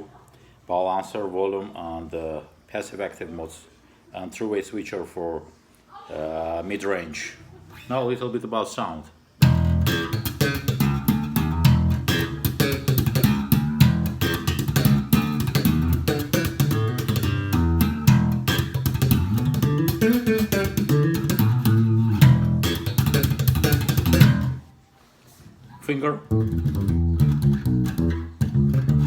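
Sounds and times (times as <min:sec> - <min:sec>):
electric bass plucked notes: 0:09.4 - 0:24.6, 0:26.3 - 0:29.0.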